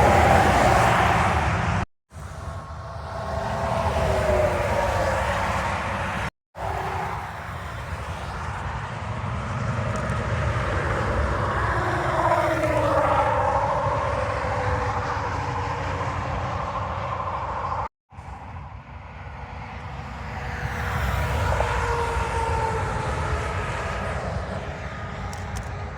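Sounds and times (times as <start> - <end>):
trucks passing on highway: 0.0 - 25.9.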